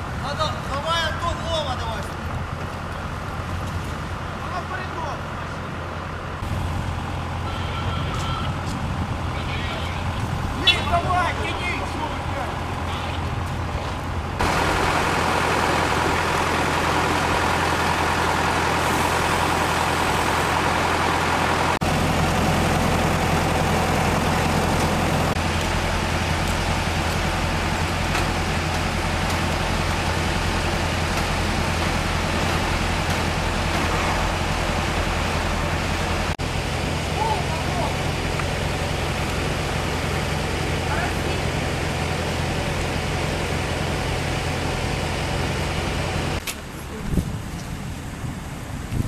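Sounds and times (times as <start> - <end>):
heavy truck engine running: 0.0 - 49.0.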